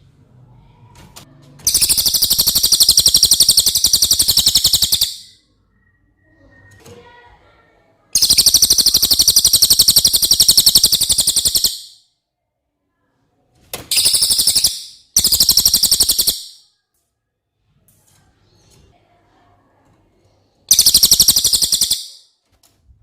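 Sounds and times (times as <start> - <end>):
songbird trilling: 1.7 - 5.4, 8.2 - 12.0, 13.9 - 16.6, 20.7 - 22.2.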